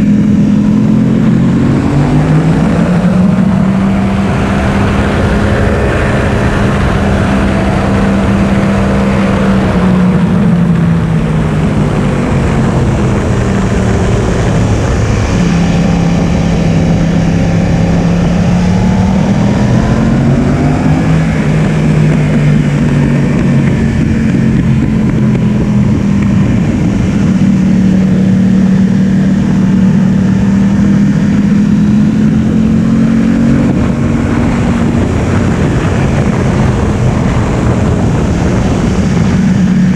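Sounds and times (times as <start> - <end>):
motorcycle engine at high revs: 0.0 - 39.9
wind noise: 0.0 - 39.9.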